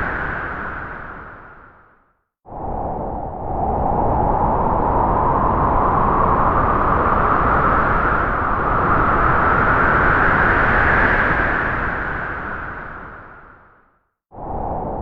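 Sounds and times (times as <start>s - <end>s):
strong wind gust rushing: 2.5s - 12.9s.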